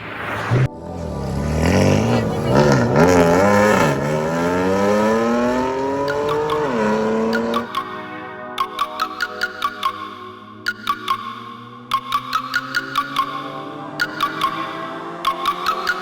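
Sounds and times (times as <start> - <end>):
racing car engine revving: 0.2 - 7.7.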